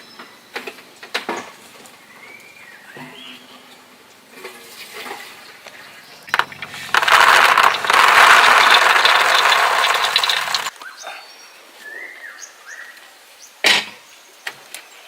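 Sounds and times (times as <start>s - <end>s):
water pouring: 4.6s - 10.7s.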